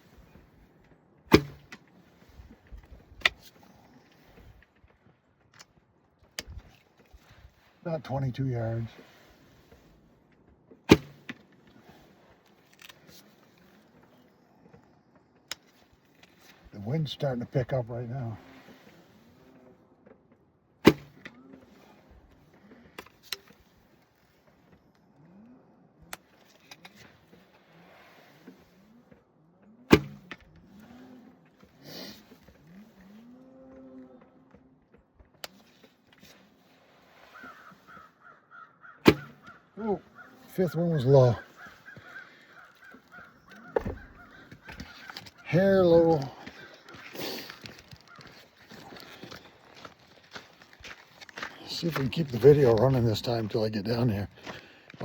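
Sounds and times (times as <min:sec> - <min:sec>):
faint arrow hit: 0:01.3 - 0:01.8, 0:39.0 - 0:39.4.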